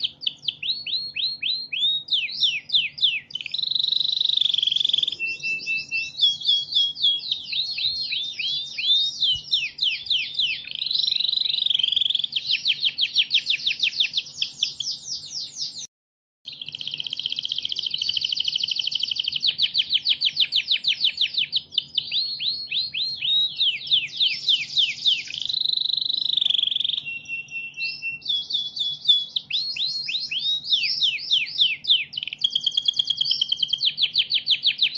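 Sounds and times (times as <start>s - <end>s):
canary singing trills: 0.0s - 15.9s, 16.5s - 34.9s.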